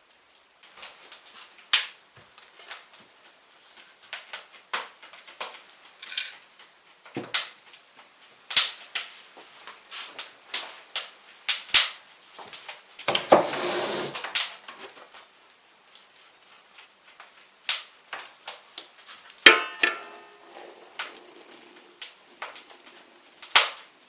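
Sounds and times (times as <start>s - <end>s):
rough scraping and rustling: 13.2s - 14.3s
sharp knock with ringing tone: 19.5s - 20.4s.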